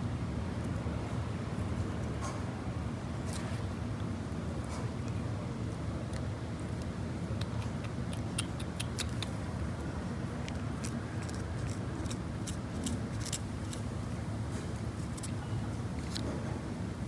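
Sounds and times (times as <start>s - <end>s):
cat licking: 7.4s - 9.5s, 10.4s - 13.9s.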